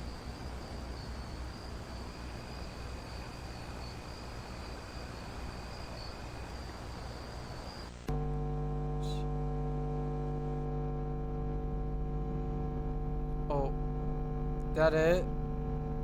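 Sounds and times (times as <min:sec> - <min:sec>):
constant hiss: 0:00.0 - 0:08.1
high cricket-like trill: 0:00.0 - 0:08.1.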